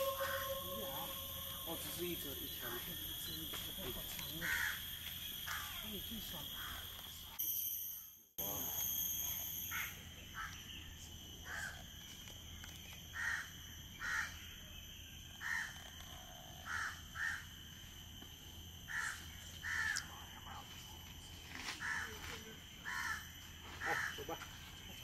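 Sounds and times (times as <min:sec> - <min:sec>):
bird calling: 0:00.0 - 0:06.9
steady high-pitched drone: 0:00.0 - 0:07.4.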